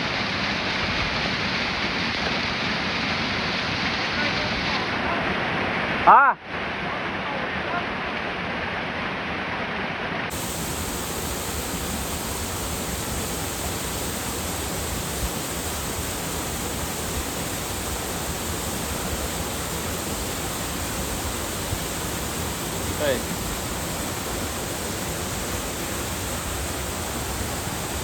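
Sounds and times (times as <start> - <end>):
waterfall rushing water: 10.3 - 28.0.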